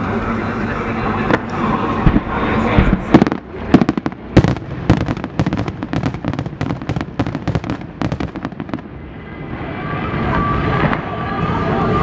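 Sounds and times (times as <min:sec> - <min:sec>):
fireworks bangs and cracks: 0:01.2 - 0:09.1.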